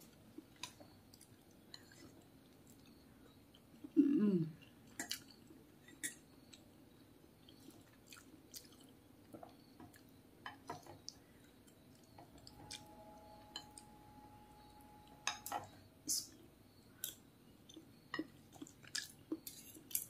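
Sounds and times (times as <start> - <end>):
faint chewing: 0.0 - 4.0, 4.6 - 6.7, 7.4 - 10.1, 16.3 - 20.0
faint steady hum: 0.0 - 20.0.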